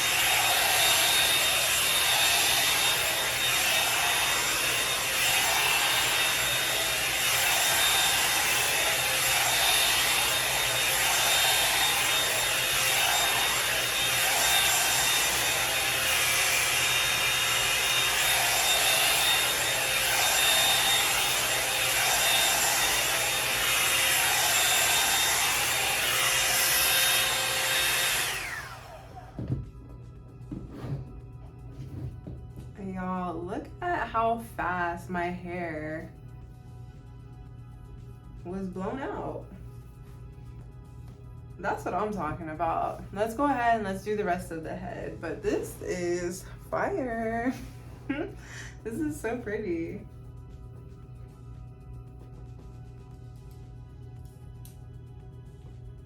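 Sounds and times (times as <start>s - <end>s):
hot-air brush dryer running: 0.0s - 32.7s, 41.6s - 53.7s.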